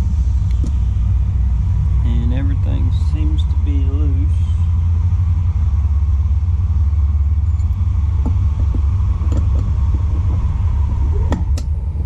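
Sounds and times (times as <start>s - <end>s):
loud low rumble: 0.0s - 12.0s
tools clicking and tapping: 7.6s - 9.7s.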